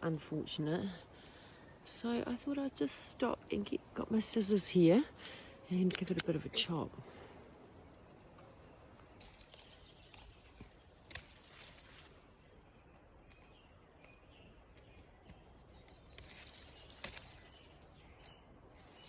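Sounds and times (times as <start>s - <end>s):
leaves rustling: 3.5s - 19.0s
scissors snipping stems: 5.1s - 6.9s, 9.2s - 19.0s.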